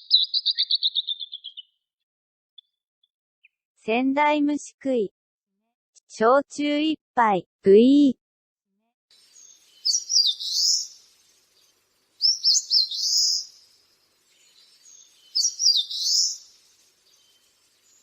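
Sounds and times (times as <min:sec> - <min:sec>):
warbler singing: 0:00.0 - 0:01.8, 0:09.1 - 0:18.0.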